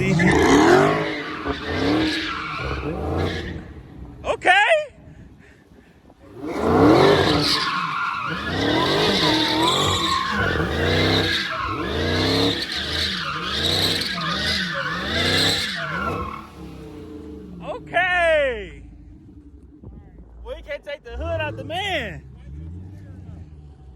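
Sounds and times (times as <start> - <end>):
car engine revving hard: 0.0 - 4.2, 6.3 - 17.9
tyres squealing and skidding: 0.0 - 4.4, 6.2 - 19.5.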